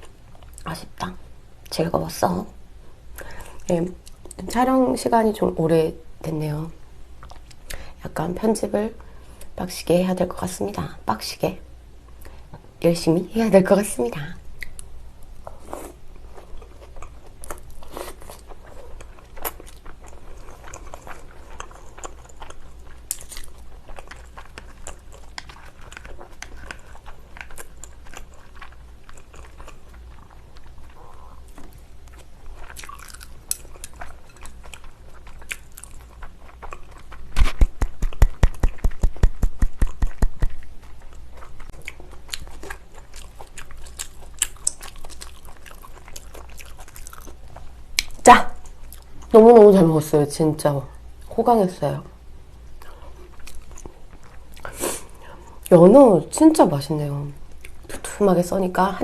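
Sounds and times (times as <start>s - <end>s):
close chewing: 14.6s - 49.3s, 52.8s - 54.8s
wet mouth clicks and smacks: 37.4s - 40.7s.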